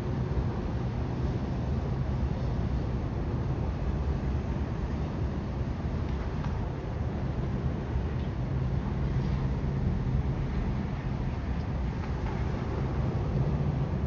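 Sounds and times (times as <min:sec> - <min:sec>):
low outdoor rumble: 0:04.8 - 0:14.0.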